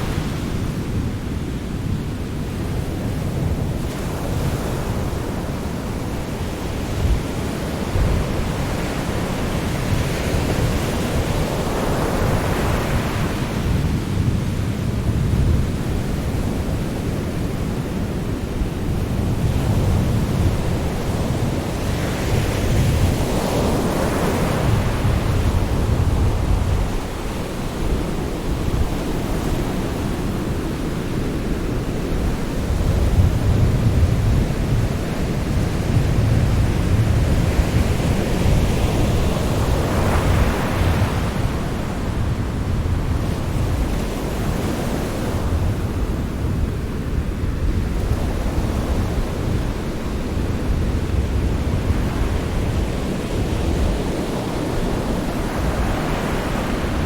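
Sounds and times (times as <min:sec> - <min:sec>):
low rumble of waves: 0:00.0 - 0:57.0
wave breaking and washing in: 0:18.0 - 0:57.0.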